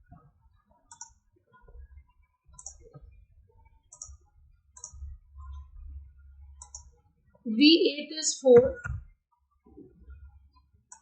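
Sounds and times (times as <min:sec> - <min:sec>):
computer mouse clicks: 0:00.9 - 0:01.2, 0:02.5 - 0:03.0, 0:03.9 - 0:05.6, 0:06.6 - 0:06.9
faint low rumble: 0:02.9 - 0:07.2.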